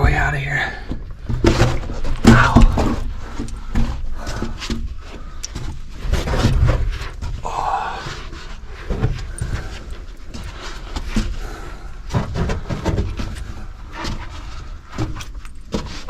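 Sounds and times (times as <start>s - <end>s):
person breathing hard: 2.5s - 6.0s, 7.3s - 14.9s.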